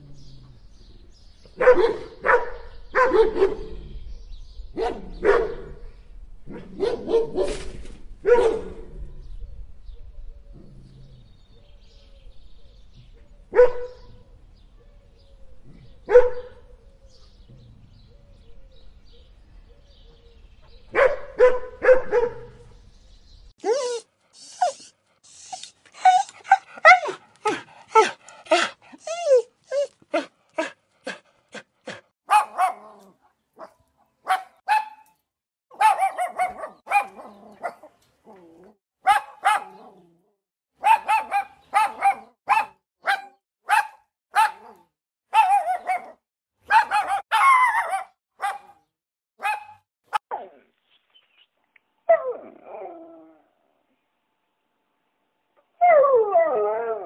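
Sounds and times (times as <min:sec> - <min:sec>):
dog barking and yipping: 0:01.6 - 0:03.6, 0:06.5 - 0:08.8, 0:20.9 - 0:22.5, 0:23.6 - 0:31.2, 0:31.9 - 0:35.1, 0:35.7 - 0:38.0, 0:39.0 - 0:40.0, 0:40.8 - 0:48.8, 0:49.4 - 0:50.5.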